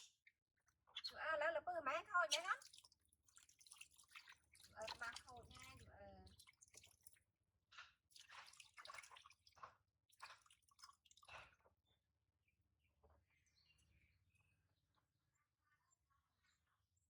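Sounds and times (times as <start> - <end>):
water dripping and splashing: 2.2 - 7.2, 8.1 - 11.4.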